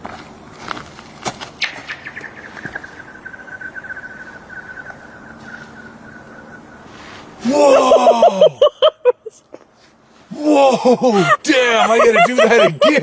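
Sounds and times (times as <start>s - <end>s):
ice singing chirps: 1.6s - 7.2s.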